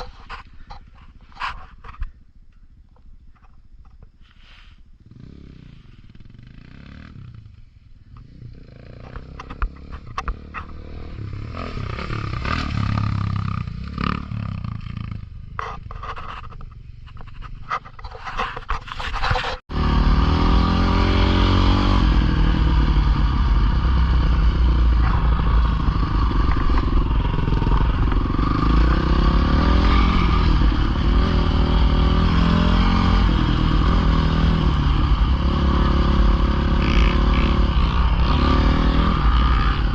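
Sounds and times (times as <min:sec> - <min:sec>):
dirt bike engine: 0:00.0 - 0:39.9
clattering and scraping: 0:15.6 - 0:19.7.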